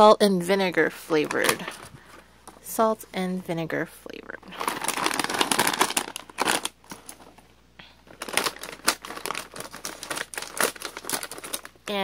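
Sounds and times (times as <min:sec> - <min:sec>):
chip bag crinkling: 0:04.5 - 0:07.4, 0:08.0 - 0:12.0.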